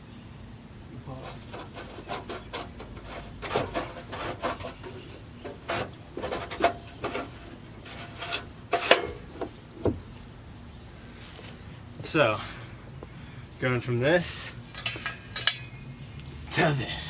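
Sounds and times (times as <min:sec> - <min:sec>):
metal parts knocking and scraping: 0:01.2 - 0:09.5, 0:14.7 - 0:15.7.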